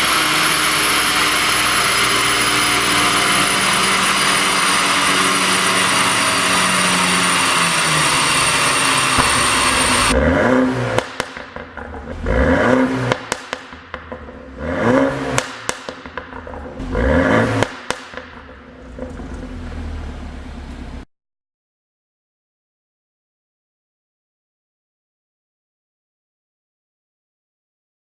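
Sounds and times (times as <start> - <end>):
car engine revving: 0.0 - 21.1
loud mechanical whir: 0.0 - 21.1
exhaust pops and crackles: 9.0 - 21.0.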